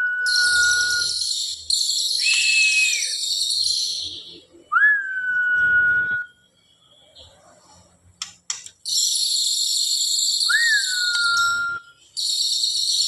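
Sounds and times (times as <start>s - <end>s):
bird whistled note: 2.2s - 3.2s
sharp clicks: 8.2s - 8.8s.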